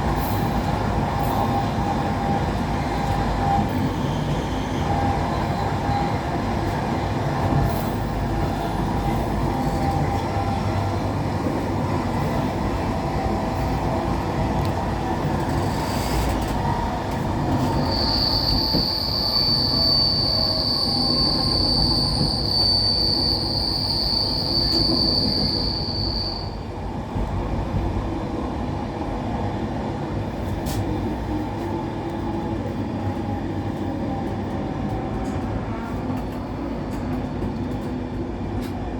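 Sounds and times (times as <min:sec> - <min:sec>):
wheels rumbling on rail: 0:00.0 - 0:38.9
high wheel squeal: 0:17.5 - 0:26.6.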